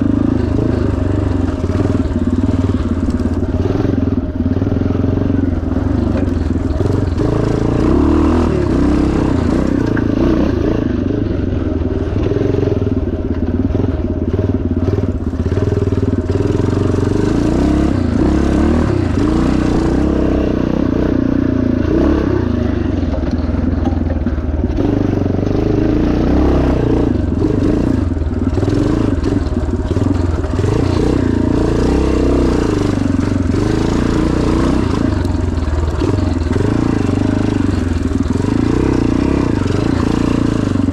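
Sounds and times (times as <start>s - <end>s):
motorcycle engine running hard: 0.0s - 40.9s
rattles and clatter: 22.8s - 25.6s.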